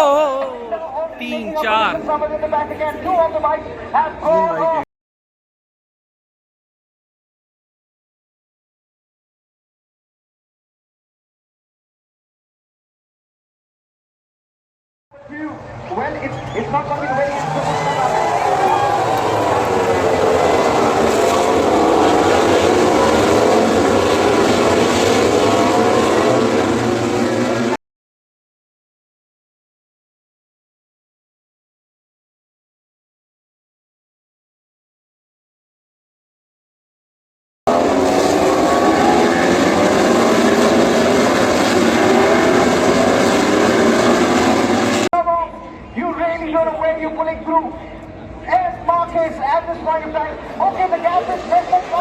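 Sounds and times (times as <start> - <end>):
racing motorcycles passing: 17.0 - 27.8, 37.7 - 45.1.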